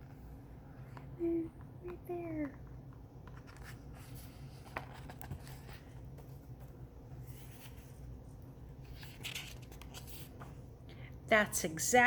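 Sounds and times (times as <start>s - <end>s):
low room hum: 0.0s - 12.0s
paper pages rustling: 3.2s - 10.6s.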